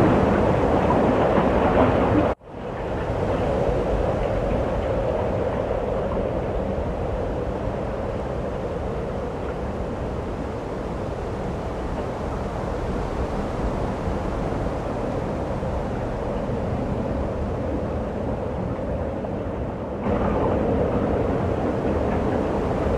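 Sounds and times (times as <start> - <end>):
steady rumbling noise: 18.1 - 22.9.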